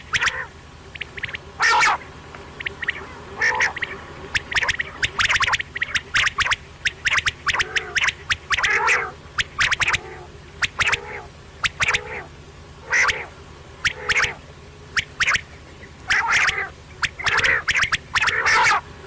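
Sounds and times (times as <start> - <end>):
quail clicking notes: 0.0 - 18.8
quail throaty calls: 0.0 - 19.0.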